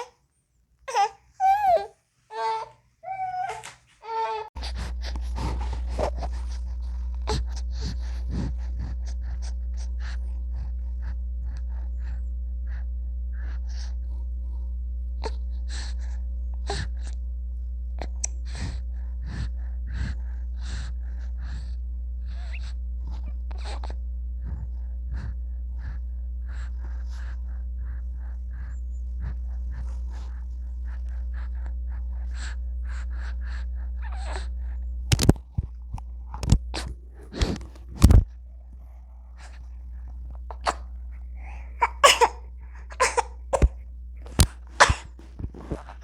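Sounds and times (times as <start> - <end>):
steady low hum: 0.0 - 46.0
baby gasping breaths and snuffles: 40.5 - 46.0.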